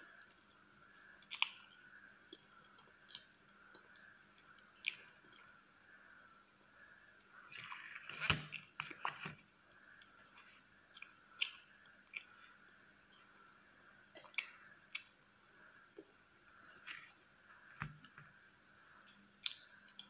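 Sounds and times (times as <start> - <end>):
wet chewing and smacking: 1.2 - 5.5.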